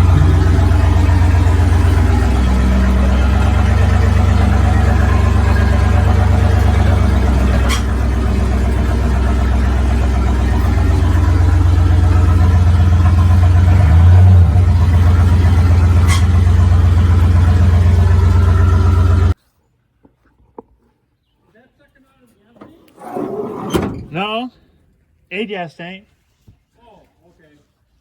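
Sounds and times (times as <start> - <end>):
car engine running and revving: 0.0 - 19.4.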